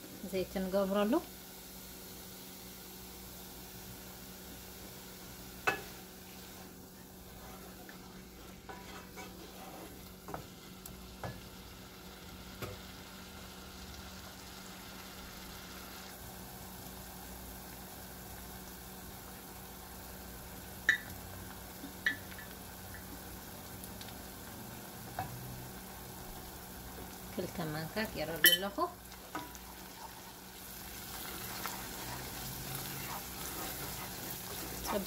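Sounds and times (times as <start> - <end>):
food sizzling in oil: 0.0 - 35.0
wooden spoon scraping pan: 7.2 - 10.5, 31.2 - 35.0.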